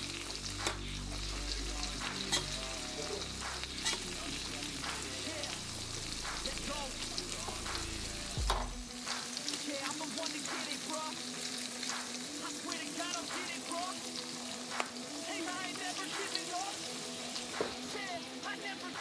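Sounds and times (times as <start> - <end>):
batter deep-frying in oil: 0.0 - 19.0
thump: 8.4 - 8.8.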